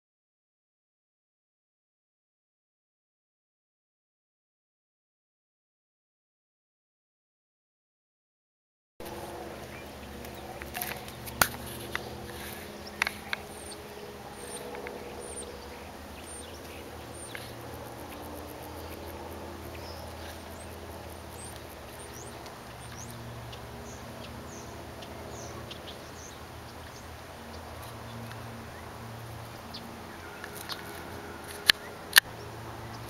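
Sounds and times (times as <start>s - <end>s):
small birds chirping: 9.0s - 33.0s
steady low hum: 9.0s - 33.0s.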